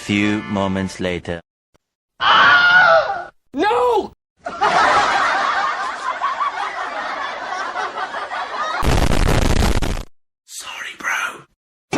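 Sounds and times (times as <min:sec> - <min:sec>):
people laughing together: 0:04.4 - 0:08.8
loud bass-heavy noise burst: 0:08.8 - 0:10.1.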